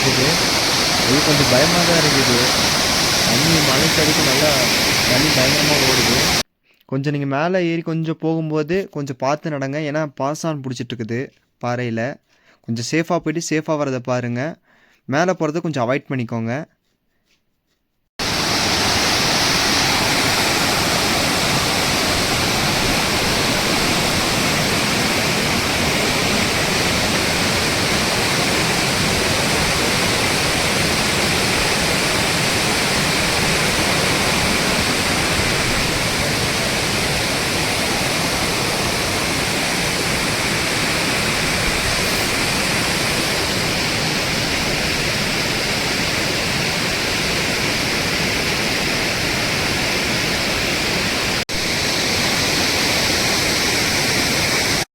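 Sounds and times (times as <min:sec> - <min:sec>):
waterfall rushing over rock: 0:00.0 - 0:06.4, 0:18.2 - 0:54.9.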